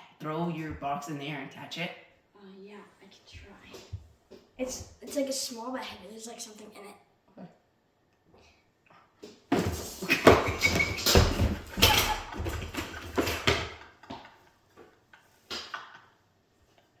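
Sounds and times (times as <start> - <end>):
box knocking and rattling: 9.5 - 13.9.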